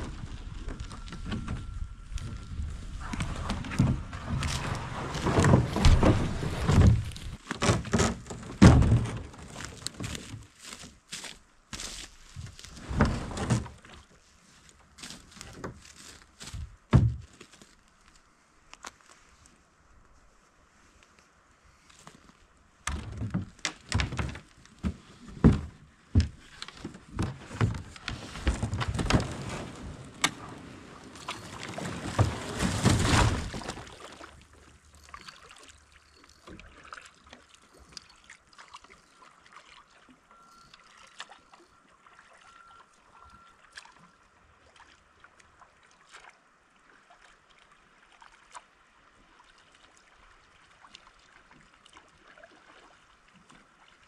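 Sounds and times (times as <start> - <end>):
water splashing: 27.4 - 54.0.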